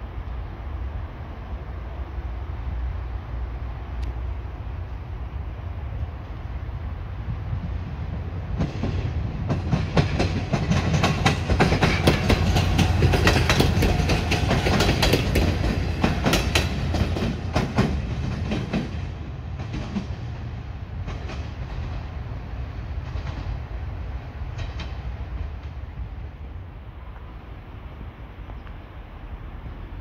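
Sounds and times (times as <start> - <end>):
train low rumble: 0.0 - 30.0
train wheels clacking over rail joints: 8.1 - 23.7, 24.4 - 25.9.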